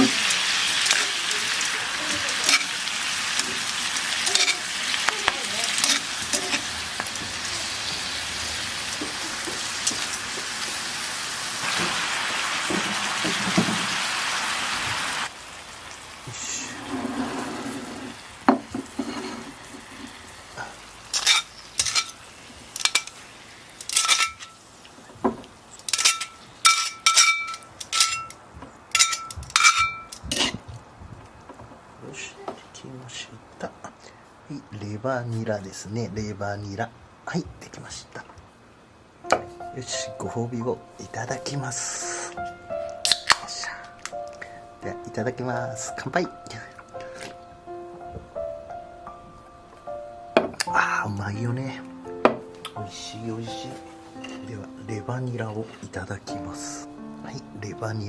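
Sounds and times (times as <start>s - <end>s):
food sizzling in a pan: 0.0s - 28.2s
utensil clinking on metal pan: 23.9s - 24.6s, 25.9s - 30.5s.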